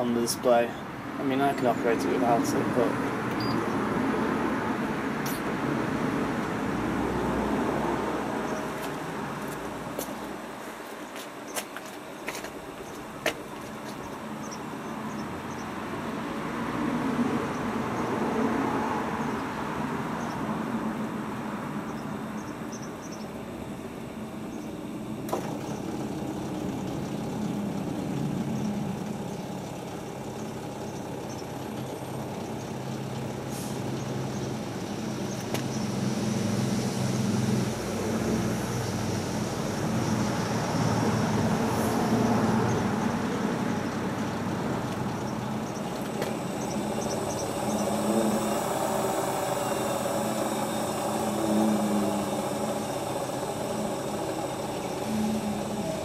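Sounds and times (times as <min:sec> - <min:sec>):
washing machine motor hum: 0:00.0 - 0:41.7, 0:42.3 - 0:56.0.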